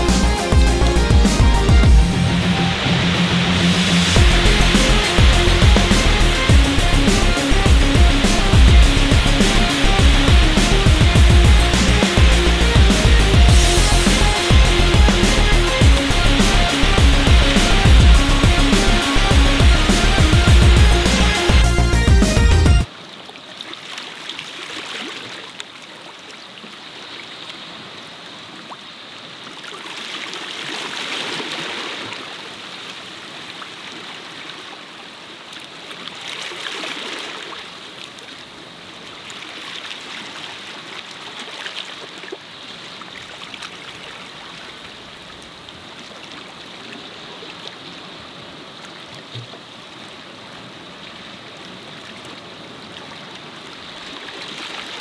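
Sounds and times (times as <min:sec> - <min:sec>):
small waves washing onto shore: 0:22.8 - 0:55.0.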